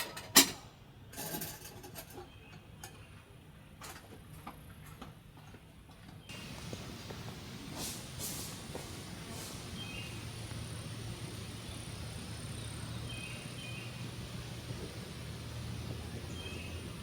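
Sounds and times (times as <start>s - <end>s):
insects trilling: 6.3s - 17.0s
low steady hum: 6.3s - 17.0s.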